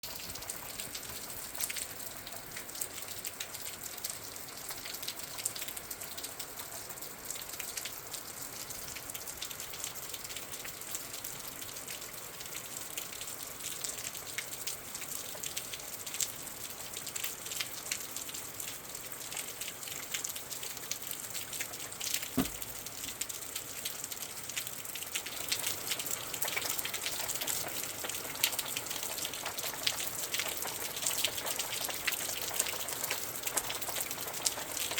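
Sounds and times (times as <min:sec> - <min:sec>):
rain falling: 0:00.0 - 0:34.9
sharp tap: 0:22.4 - 0:22.6.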